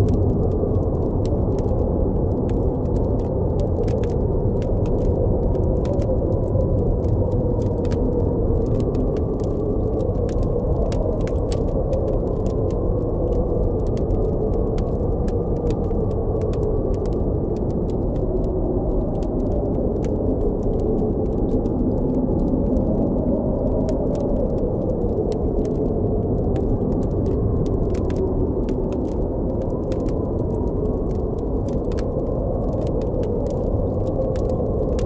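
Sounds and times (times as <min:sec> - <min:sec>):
campfire crackling: 0:00.0 - 0:35.0
howling blizzard wind: 0:00.0 - 0:35.0.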